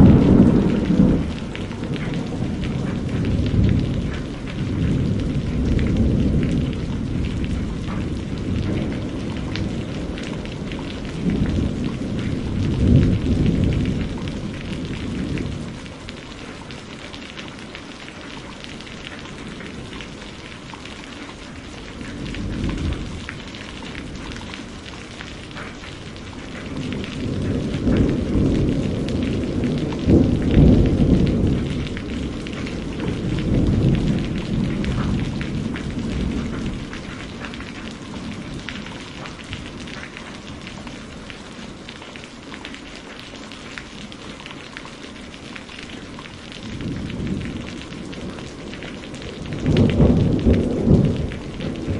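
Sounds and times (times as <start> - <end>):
rolling thunder: 0.0 - 16.6, 21.6 - 41.6, 45.9 - 51.9
steady rain: 0.0 - 51.9.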